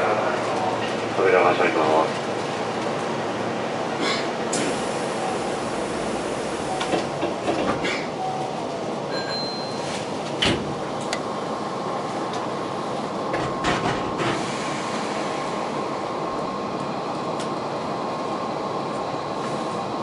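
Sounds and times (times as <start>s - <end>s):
electric train running noise: 4.5s - 9.4s.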